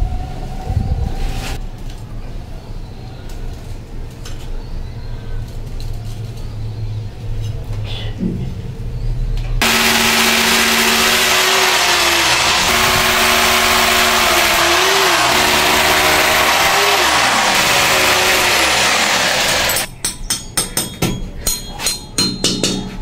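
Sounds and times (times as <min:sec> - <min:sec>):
motor-driven machine humming: 0:09.6 - 0:19.9.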